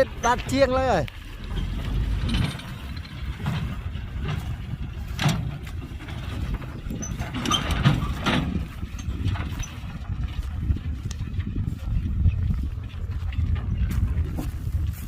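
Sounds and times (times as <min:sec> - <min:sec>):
metallic clanks: 0:00.0 - 0:10.1
diesel machinery rumbling: 0:00.0 - 0:15.0.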